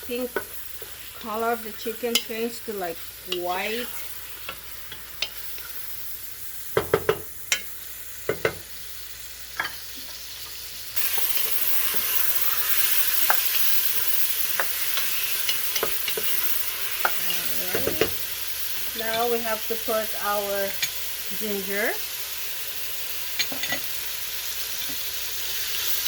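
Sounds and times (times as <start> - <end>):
chicken sizzling in oil: 0.0 - 26.0
utensil knocking and scraping pot: 6.7 - 7.7, 8.3 - 8.7, 11.1 - 18.2, 23.4 - 23.9.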